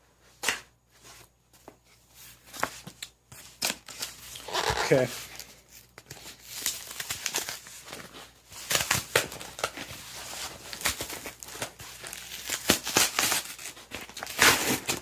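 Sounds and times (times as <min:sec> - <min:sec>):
package tearing and crinkling: 0:03.6 - 0:15.0.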